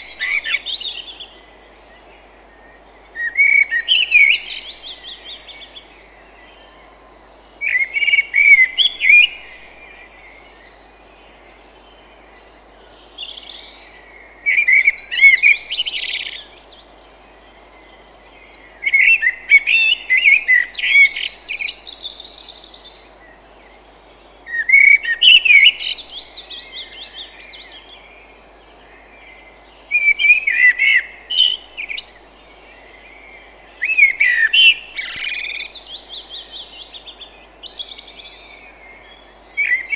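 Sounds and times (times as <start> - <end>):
songbird chirping: 0.0 - 39.9
steady background hiss: 0.0 - 39.9.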